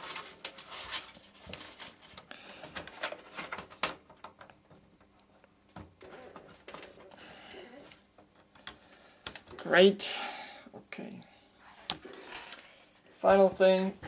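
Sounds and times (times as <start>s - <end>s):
rustling: 0.0s - 3.8s.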